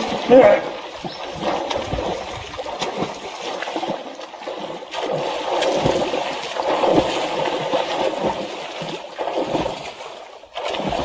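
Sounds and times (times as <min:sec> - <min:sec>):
water splashing and sloshing: 0:00.0 - 0:11.0
dull low thuds: 0:00.9 - 0:08.5.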